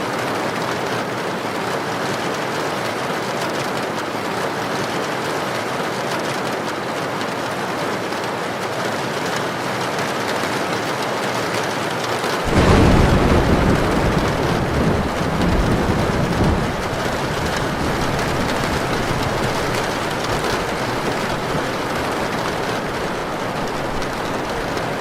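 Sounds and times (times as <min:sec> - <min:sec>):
heavy rain: 0:00.0 - 0:25.0
thunder rumble: 0:12.4 - 0:25.0.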